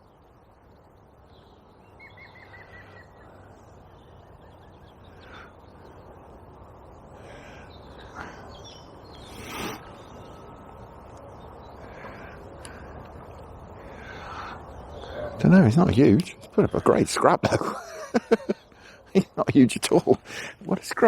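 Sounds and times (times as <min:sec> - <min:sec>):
low outdoor background: 0:00.0 - 0:21.0
harsh bird calls: 0:01.2 - 0:21.0
small bird trilling chirps: 0:01.3 - 0:05.3, 0:07.6 - 0:10.5.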